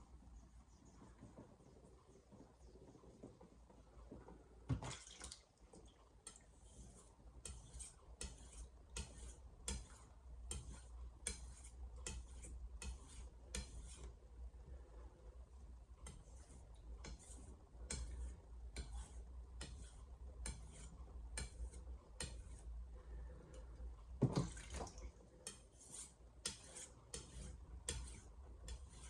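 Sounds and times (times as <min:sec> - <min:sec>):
knife scraping on whetstone: 0:06.3 - 0:14.2, 0:16.0 - 0:22.7, 0:25.4 - 0:29.0.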